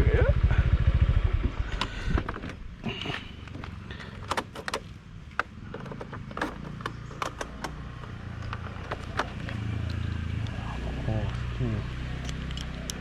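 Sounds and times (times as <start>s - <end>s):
sharp clicks and knocks: 3.5s - 9.6s
motorbike engine running: 3.6s - 5.7s, 6.3s - 10.4s.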